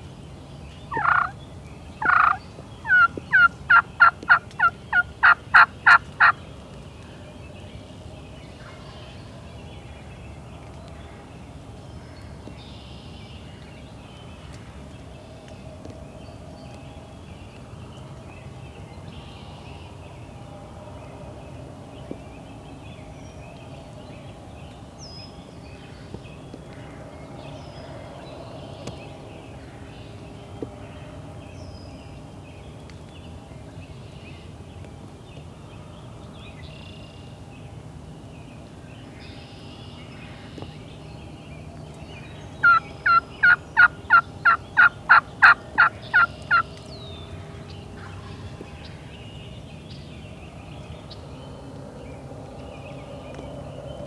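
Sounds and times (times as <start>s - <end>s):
distant bird chirps: 0.0s - 20.5s, 21.1s - 54.0s
wild turkey yelping: 0.9s - 1.4s, 2.0s - 6.3s, 42.6s - 46.7s.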